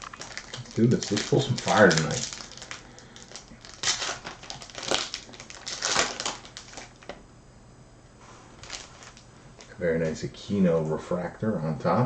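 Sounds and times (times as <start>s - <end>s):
foil wrapper torn and crinkled: 0.0s - 7.1s, 8.6s - 9.3s.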